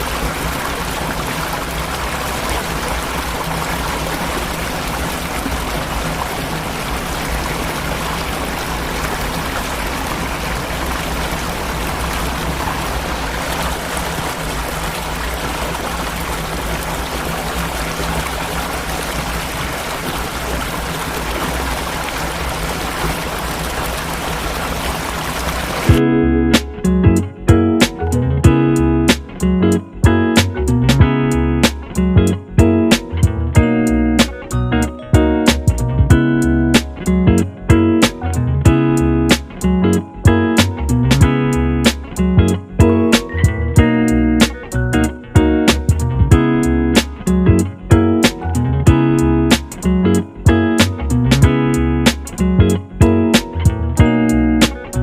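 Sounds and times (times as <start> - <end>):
flowing water rushing: 0.0 - 26.0
plucked guitar music: 25.9 - 55.0.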